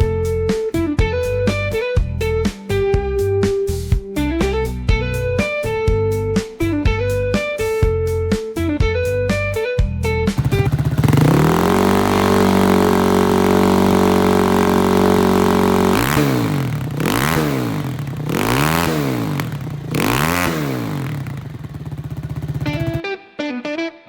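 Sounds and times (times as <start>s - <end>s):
motorcycle engine revving: 10.3s - 23.0s.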